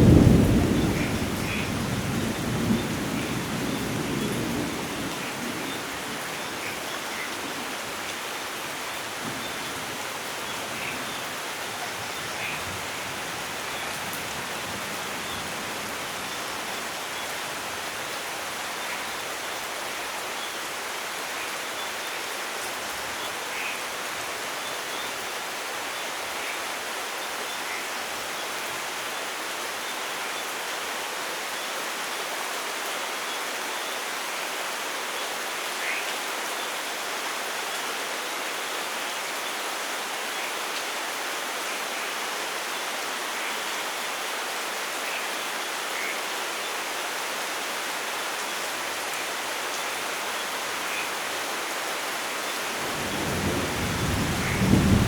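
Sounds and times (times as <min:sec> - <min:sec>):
low rumble of thunder: 0:00.0 - 0:05.6, 0:52.8 - 0:55.0
steady rain: 0:00.0 - 0:55.0.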